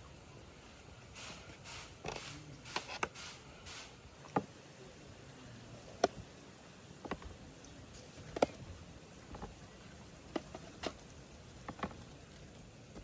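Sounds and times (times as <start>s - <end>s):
sharp clicks and light knocks: 5.9s - 6.3s, 7.0s - 9.6s, 10.3s - 13.0s.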